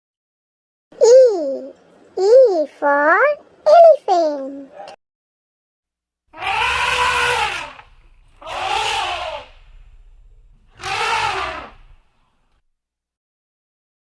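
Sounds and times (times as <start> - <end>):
elephant trumpeting: 6.4 - 12.5
low rumble: 7.6 - 11.0.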